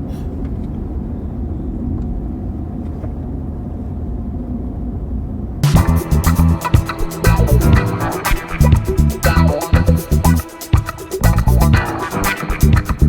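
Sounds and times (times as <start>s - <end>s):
guitar music: 5.6s - 13.0s.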